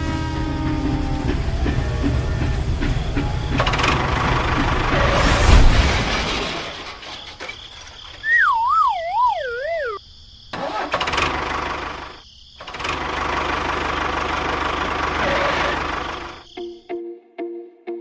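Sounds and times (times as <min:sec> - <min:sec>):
engine-like running noise: 0:00.0 - 0:07.1, 0:10.5 - 0:16.4
wobbling falling whistle tone: 0:00.2 - 0:05.9, 0:08.2 - 0:10.0.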